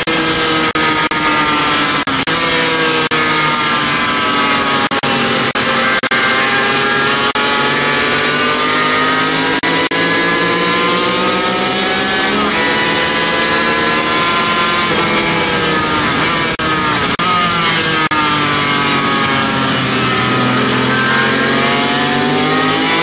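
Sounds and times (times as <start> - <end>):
motorcycle engine at high revs: 0.0 - 23.0.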